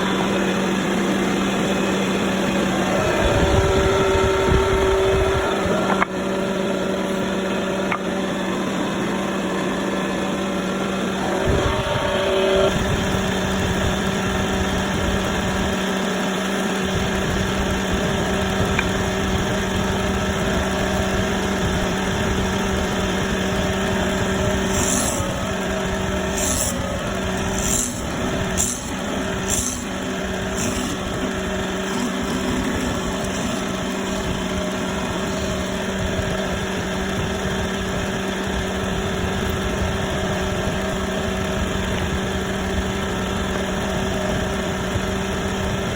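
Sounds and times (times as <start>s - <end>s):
woodworking machine motor humming: 0.0s - 45.9s.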